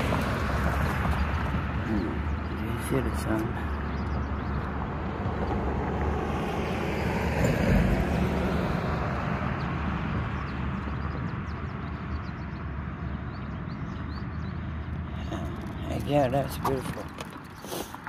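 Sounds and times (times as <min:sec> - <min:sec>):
small birds chirping: 0:00.7 - 0:05.6, 0:09.4 - 0:18.0.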